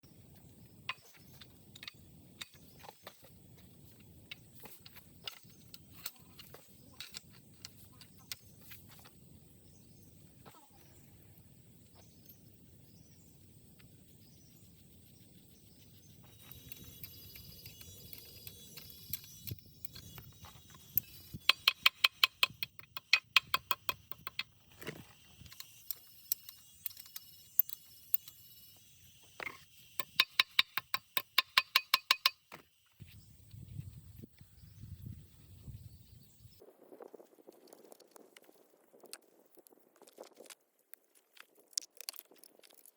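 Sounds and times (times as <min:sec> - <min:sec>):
metal tool clicking on metal: 0:16.3 - 0:24.5, 0:25.5 - 0:28.7, 0:29.4 - 0:32.5.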